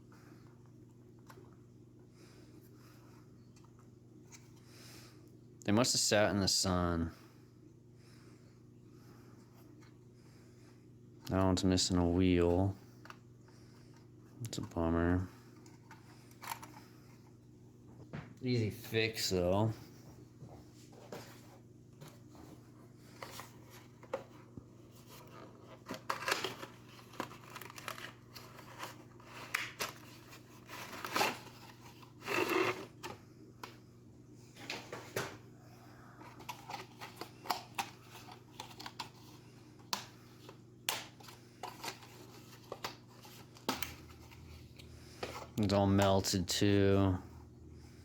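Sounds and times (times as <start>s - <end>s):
steady low hum: 0.0s - 48.0s
packaging crinkling: 25.8s - 33.0s.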